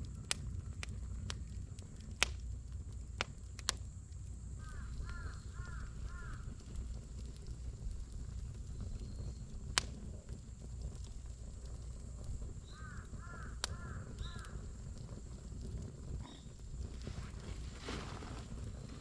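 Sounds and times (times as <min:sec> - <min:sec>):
campfire rumbling: 0:00.0 - 0:19.0
fire crackling pops: 0:00.0 - 0:19.0
bird calling: 0:04.6 - 0:06.4, 0:12.6 - 0:14.6.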